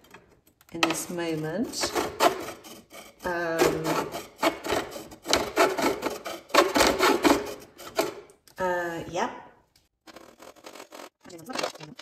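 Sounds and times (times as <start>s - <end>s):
hacksaw cutting wood: 0.8s - 8.3s, 10.1s - 11.2s.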